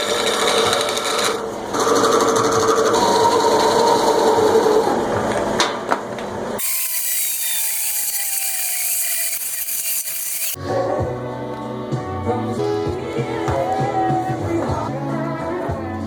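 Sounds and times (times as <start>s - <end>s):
power tool grinding wood: 6.6s - 10.6s.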